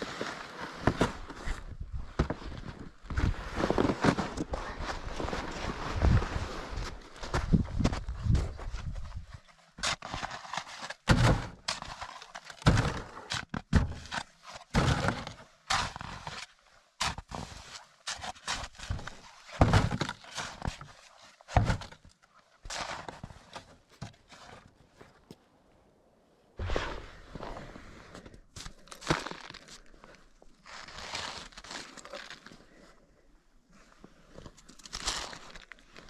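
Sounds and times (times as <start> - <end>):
crunching footsteps in snow: 0.0 - 13.2, 26.6 - 32.8, 34.7 - 36.0.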